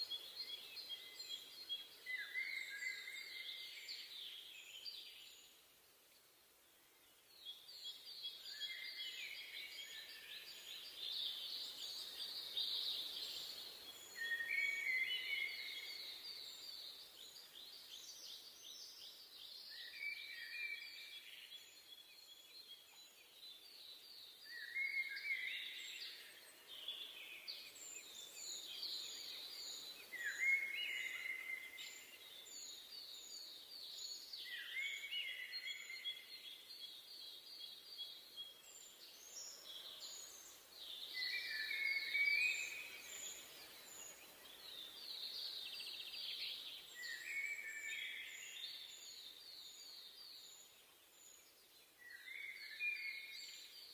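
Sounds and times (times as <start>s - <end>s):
soft steady hiss: 0.0s - 53.9s.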